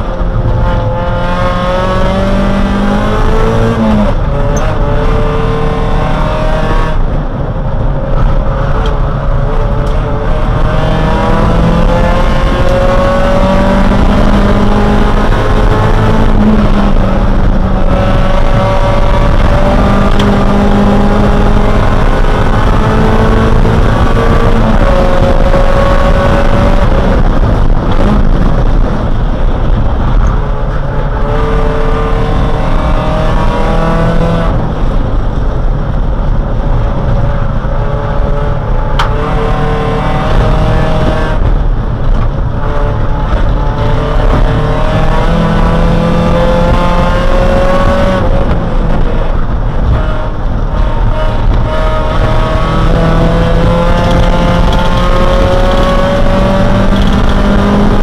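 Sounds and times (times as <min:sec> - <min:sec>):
race car engine revving: 0:00.0 - 0:58.0
road and wind noise: 0:00.0 - 0:58.0.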